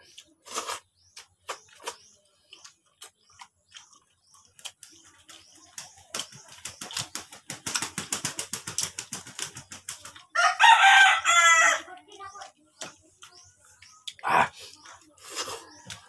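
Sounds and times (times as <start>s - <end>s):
wet chewing sounds: 0.0s - 7.2s, 9.8s - 10.5s, 11.8s - 16.0s
rooster crowing: 10.4s - 11.9s.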